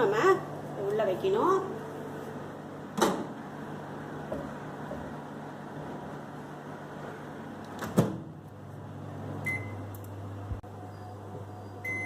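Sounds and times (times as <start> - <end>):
microwave running hum: 0.0 - 12.0
microwave door shutting: 2.9 - 3.4, 7.7 - 8.4
keypad beep: 9.4 - 9.8.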